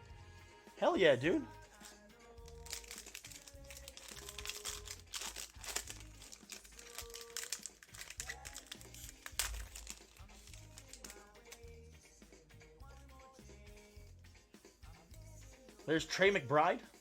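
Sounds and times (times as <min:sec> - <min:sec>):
background music with bass line: 0:00.0 - 0:17.0
cards being handled: 0:01.7 - 0:11.8
foil wrappers crinkling: 0:01.7 - 0:11.8.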